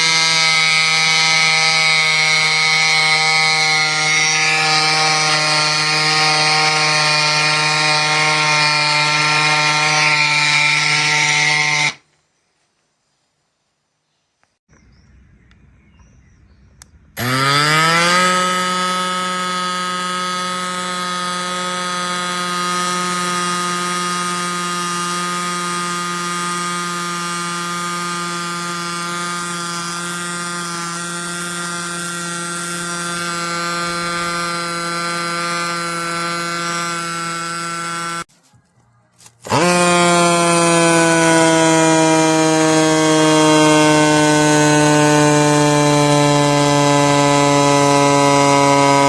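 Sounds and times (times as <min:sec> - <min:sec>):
electric pump compressor running: 0:00.0 - 0:12.0, 0:16.8 - 0:38.4, 0:39.2 - 0:49.0.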